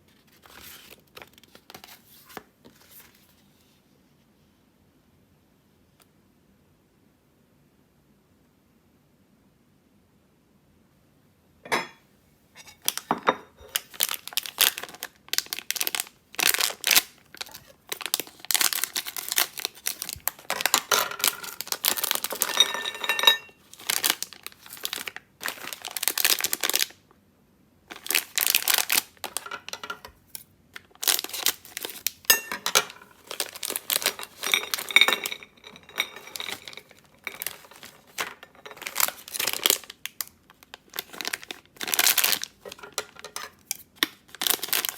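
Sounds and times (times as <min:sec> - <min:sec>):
packaging crinkling and tearing: 0:12.8 - 0:27.0, 0:27.9 - 0:44.9.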